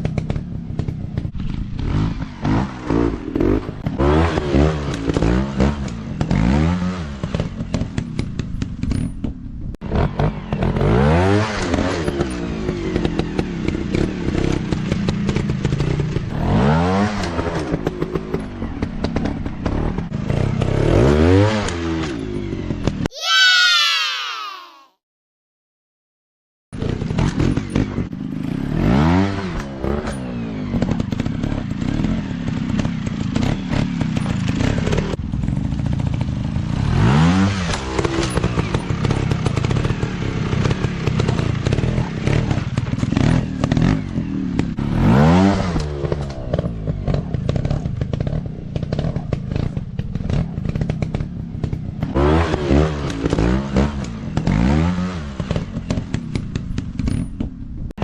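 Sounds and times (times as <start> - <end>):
dirt bike engine revving: 1.4 - 7.8, 9.8 - 22.1, 26.8 - 51.2, 52.0 - 56.2.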